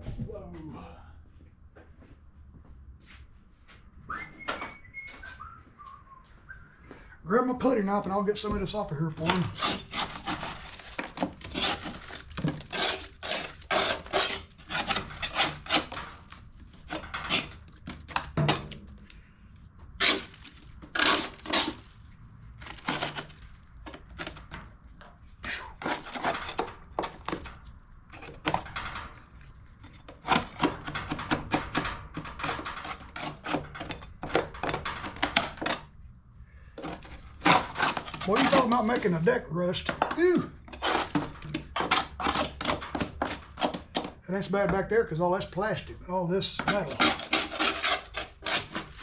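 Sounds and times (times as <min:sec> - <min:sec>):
putty knife scraping metal: 0:09.2 - 0:19.1, 0:20.0 - 0:21.9, 0:22.6 - 0:24.7, 0:25.8 - 0:36.0, 0:36.8 - 0:44.2, 0:46.5 - 0:49.0.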